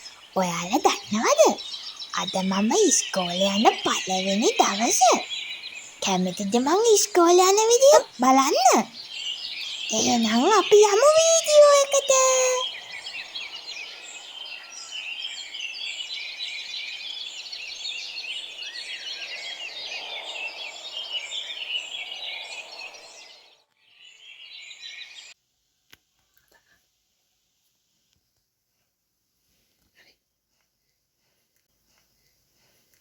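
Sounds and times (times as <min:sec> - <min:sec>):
small birds chirping: 0:00.0 - 0:25.4.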